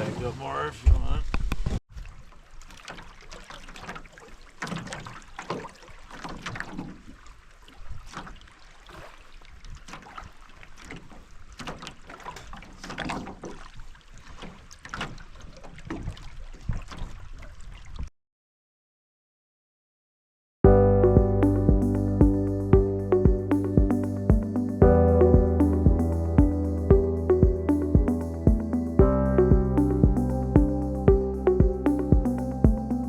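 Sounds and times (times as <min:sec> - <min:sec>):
water splashing: 0:01.9 - 0:18.1.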